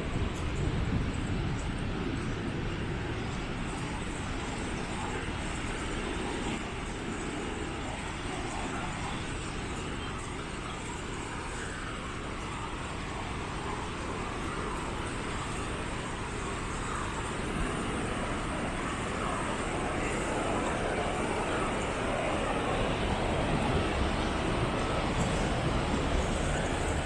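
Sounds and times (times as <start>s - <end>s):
cars passing: 19.2s - 27.0s.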